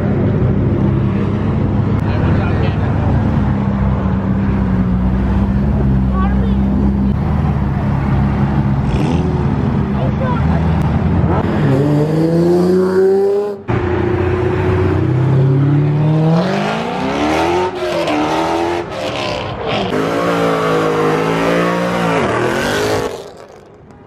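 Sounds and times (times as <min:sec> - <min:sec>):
car engine revving hard: 0:08.8 - 0:09.6, 0:14.7 - 0:23.3.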